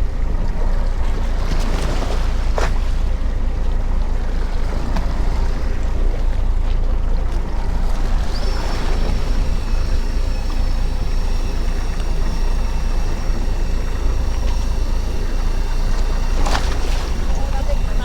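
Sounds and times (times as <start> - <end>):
boat engine rumbling: 0.0 - 18.0
high-pitched whine: 7.6 - 18.0.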